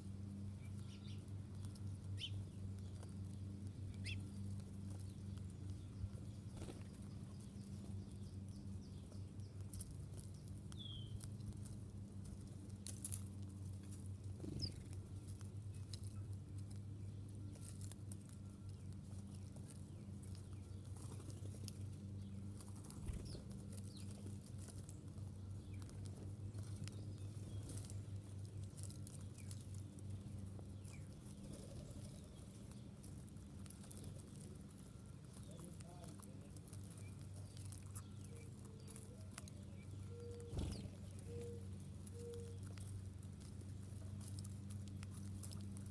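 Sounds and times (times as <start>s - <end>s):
steady low hum: 0.0s - 45.9s
faint bird chirps: 3.9s - 4.5s, 36.9s - 42.9s.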